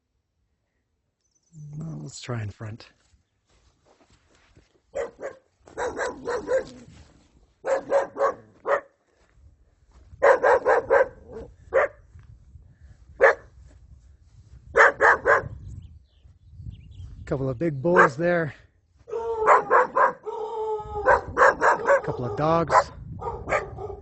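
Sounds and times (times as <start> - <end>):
dog barking: 4.9 - 6.9, 7.6 - 9.0, 10.2 - 12.0, 13.2 - 13.5, 14.8 - 15.6, 17.9 - 18.2, 19.1 - 24.0.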